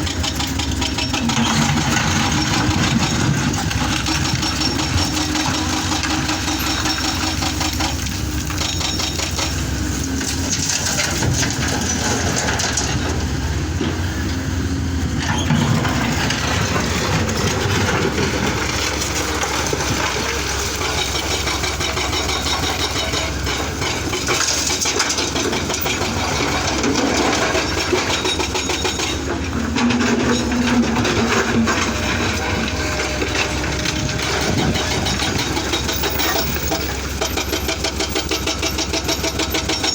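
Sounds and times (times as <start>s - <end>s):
metal clanks and scraping: 0.0s - 13.2s, 15.1s - 39.9s
excavator engine running: 0.0s - 39.9s.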